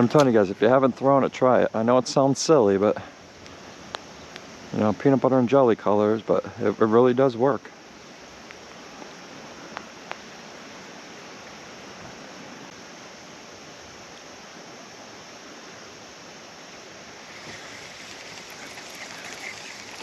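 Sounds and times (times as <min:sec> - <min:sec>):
stream water rushing: 0:07.7 - 0:20.0
gritty water splashing: 0:17.2 - 0:20.0.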